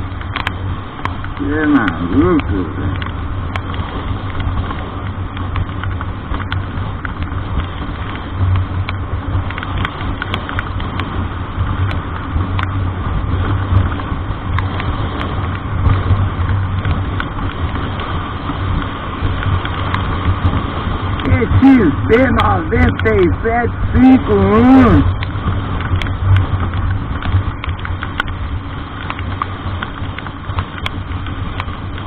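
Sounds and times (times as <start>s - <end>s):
road noise hiss: 0.0s - 32.0s
vehicle engine drone: 0.0s - 32.0s
light ticks: 0.1s - 32.0s.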